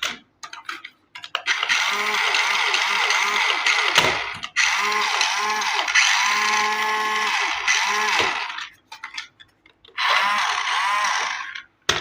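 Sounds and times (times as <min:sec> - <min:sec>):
toy motor whirring: 0:01.4 - 0:08.7, 0:10.0 - 0:11.7.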